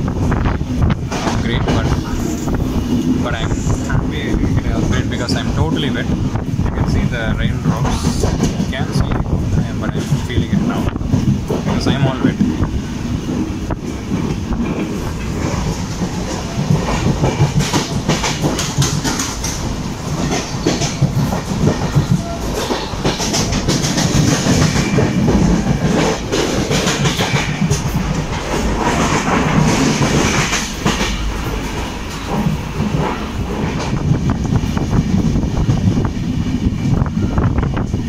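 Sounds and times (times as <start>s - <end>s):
train rumble on board: 0.0s - 38.0s
wheels clicking over rail joints: 7.6s - 35.9s.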